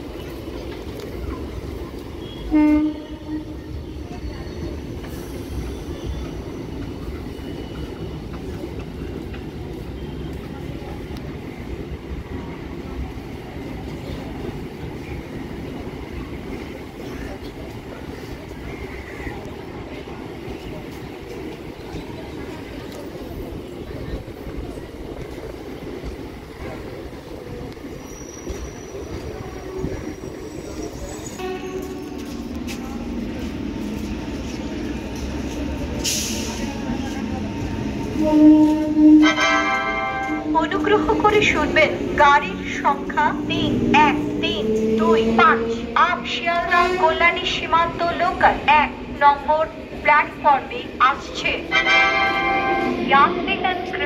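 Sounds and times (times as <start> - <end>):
train wheels rumbling on rails: 0.0 - 54.0
train horn blast: 2.2 - 3.7, 31.4 - 32.2, 38.1 - 41.0, 51.7 - 53.0.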